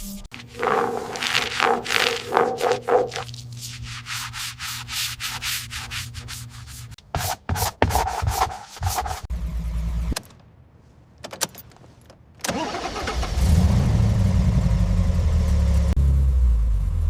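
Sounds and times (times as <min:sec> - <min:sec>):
sanding strokes on a car body: 0:00.9 - 0:09.3.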